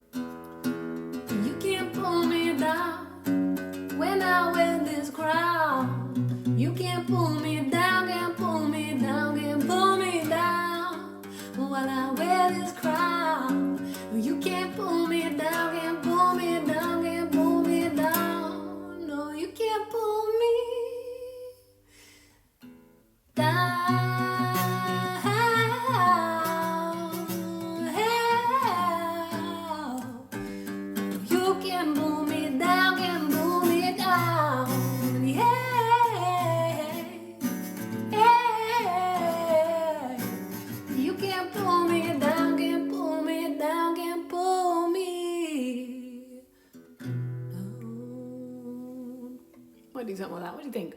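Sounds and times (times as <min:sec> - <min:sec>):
strummed acoustic guitar: 0:00.0 - 0:19.0, 0:22.6 - 0:44.3, 0:46.6 - 0:48.7
person singing wordless melody: 0:23.4 - 0:30.3, 0:31.3 - 0:46.5, 0:47.5 - 0:49.6.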